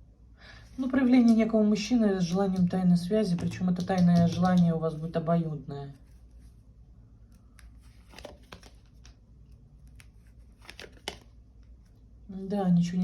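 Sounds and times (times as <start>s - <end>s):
cards rustling and clicking: 7.2s - 12.0s.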